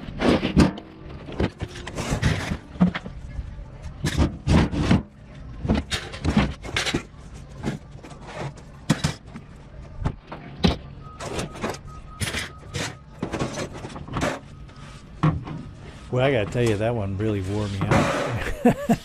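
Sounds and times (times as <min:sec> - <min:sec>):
scrap metal clanking and scraping: 0:00.0 - 0:18.9.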